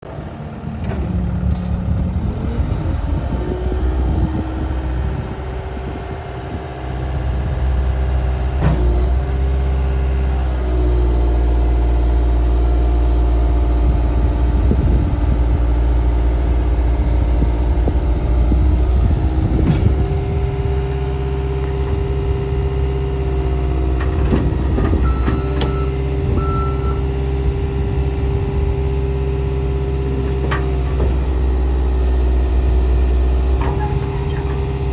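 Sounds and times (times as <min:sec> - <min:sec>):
diesel engine running: 0:00.0 - 0:34.9
short beeps: 0:25.1 - 0:27.0.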